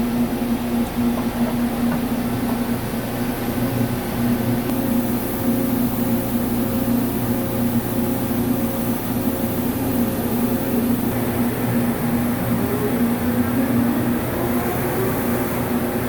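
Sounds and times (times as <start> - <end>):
lathe machine hum: 0.0 - 16.0
machine hiss: 4.6 - 16.0.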